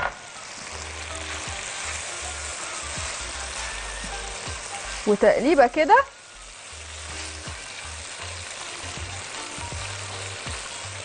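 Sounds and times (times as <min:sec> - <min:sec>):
onion and chicken sizzling in a pan: 0:00.0 - 0:11.0
spatula stirring in a pan: 0:06.5 - 0:11.0.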